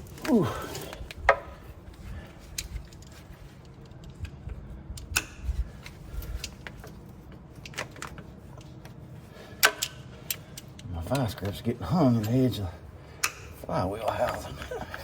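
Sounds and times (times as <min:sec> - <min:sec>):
locking pliers clicking and scraping: 0:02.5 - 0:07.0, 0:09.6 - 0:11.6, 0:12.2 - 0:12.4.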